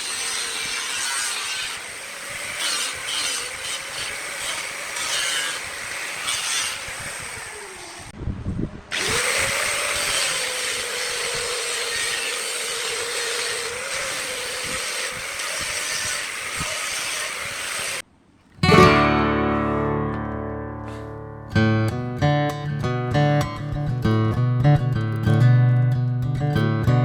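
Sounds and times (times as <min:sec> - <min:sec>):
turning tool scraping wood: 0:00.0 - 0:08.1, 0:08.9 - 0:18.0.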